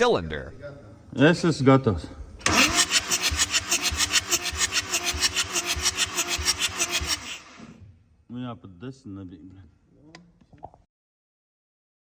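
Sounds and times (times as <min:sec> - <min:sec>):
diesel engine cranking chug: 0:02.4 - 0:07.7
starter motor whine: 0:02.4 - 0:07.8.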